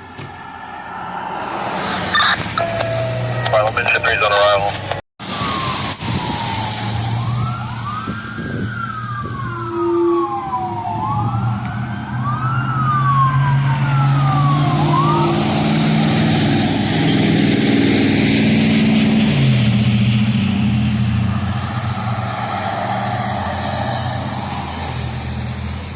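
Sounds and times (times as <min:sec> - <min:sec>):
heavy vehicle engine rumbling: 0:00.0 - 0:25.9
emergency siren wailing: 0:00.3 - 0:25.9.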